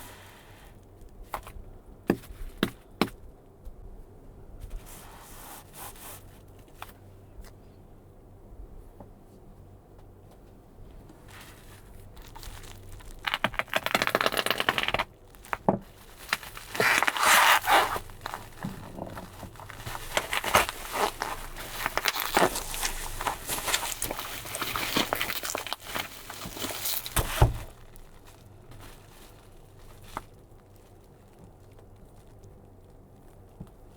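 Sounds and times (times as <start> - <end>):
bubble wrap crinkling and crackling: 11.2 - 33.9.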